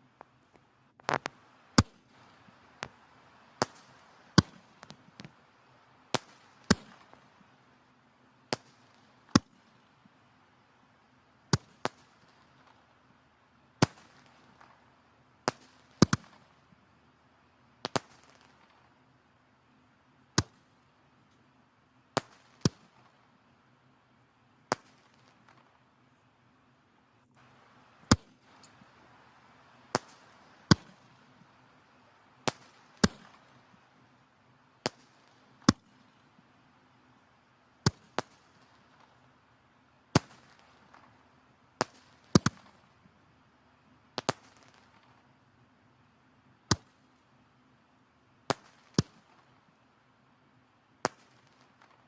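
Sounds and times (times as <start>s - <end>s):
soft hiss of flames: 0.0s - 52.0s
firewood crackling and popping: 0.1s - 7.6s, 11.5s - 12.8s, 27.2s - 33.9s.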